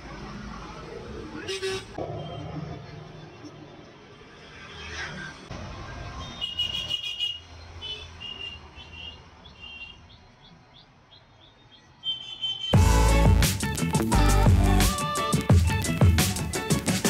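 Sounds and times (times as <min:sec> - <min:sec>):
street traffic noise: 0:00.0 - 0:17.0
loud music: 0:12.8 - 0:17.0.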